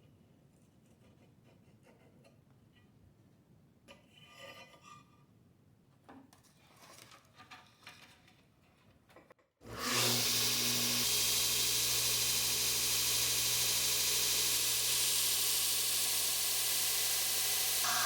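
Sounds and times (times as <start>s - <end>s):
belt grinder running: 9.7s - 18.0s.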